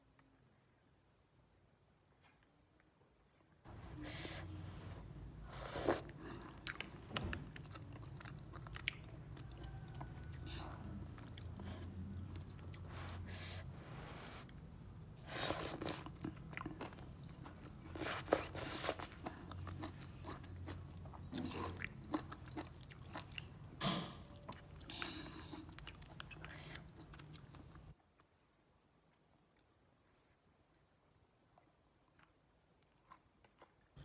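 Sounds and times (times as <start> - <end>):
person chewing noodles: 5.2 - 28.4, 31.5 - 34.0.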